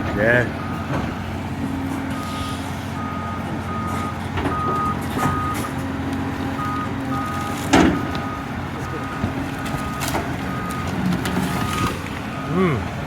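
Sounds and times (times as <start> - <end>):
excavator diesel engine running: 0.0 - 13.0
backup alarm beeping: 2.1 - 5.8, 6.6 - 12.6.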